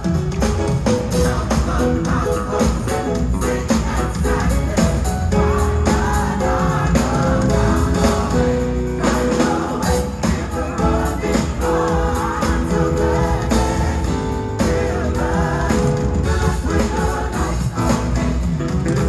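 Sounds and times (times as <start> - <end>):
gospel choir singing: 0.0 - 19.0
live band with drums and bass: 0.0 - 19.0.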